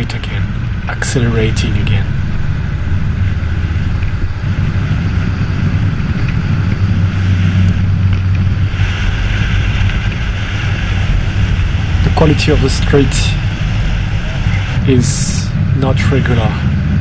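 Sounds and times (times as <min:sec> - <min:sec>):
wheels rolling on asphalt: 0:00.0 - 0:17.0
wind rushing over microphone: 0:00.0 - 0:17.0.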